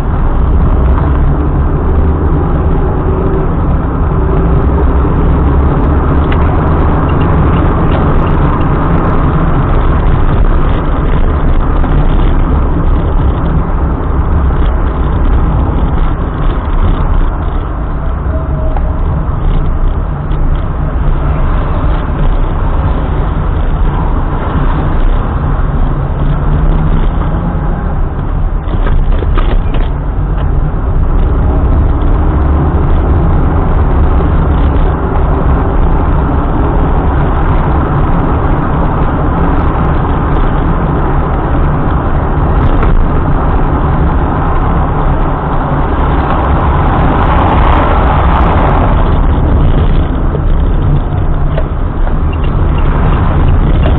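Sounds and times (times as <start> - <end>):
car engine and tyre road noise: 0.0 - 53.9.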